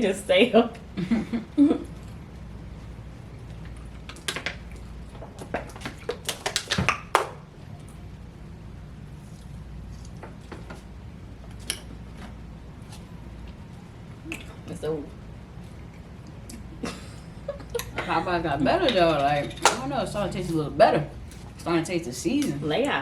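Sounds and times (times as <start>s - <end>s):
low room hum: 0.0s - 23.0s
food packaging clicks and taps: 5.2s - 7.4s.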